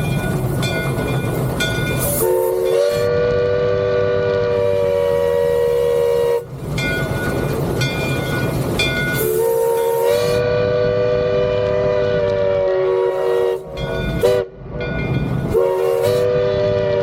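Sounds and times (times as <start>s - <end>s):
steam whistle chord: 2.0s - 6.5s, 9.2s - 14.6s, 15.5s - 17.0s.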